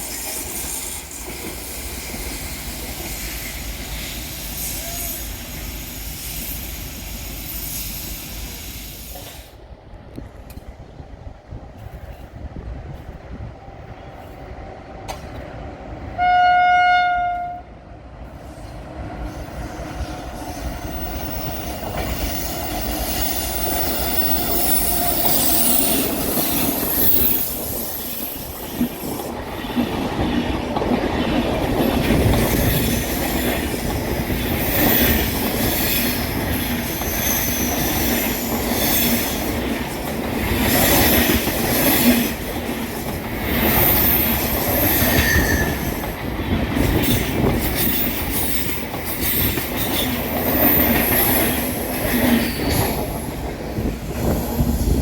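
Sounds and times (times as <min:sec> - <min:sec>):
train rumbling past: 0:00.0 - 0:55.0
train horn blast: 0:16.2 - 0:17.8
wheel flanges squealing: 0:19.4 - 0:29.2
wheels clacking over rail joints: 0:20.7 - 0:55.0.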